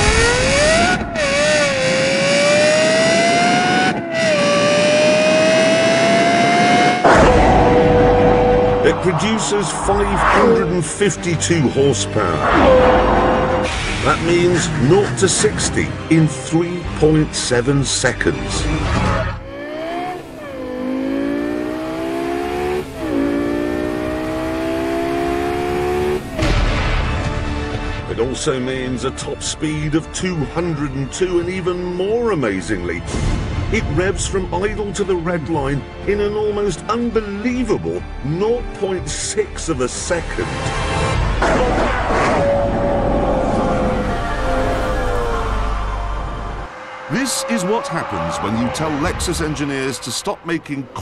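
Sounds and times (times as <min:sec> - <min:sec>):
gear upshifts: 0:00.0 - 0:11.3
sports car engine accelerating: 0:00.0 - 0:14.3, 0:18.3 - 0:26.6, 0:40.7 - 0:51.0.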